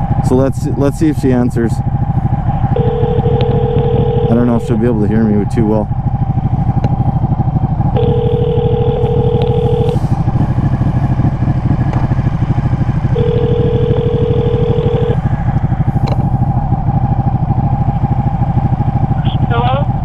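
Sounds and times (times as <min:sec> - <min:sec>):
motorcycle engine idling: 0:00.0 - 0:20.0
telephone ringback tone: 0:02.8 - 0:04.8, 0:08.0 - 0:10.0, 0:13.2 - 0:15.2.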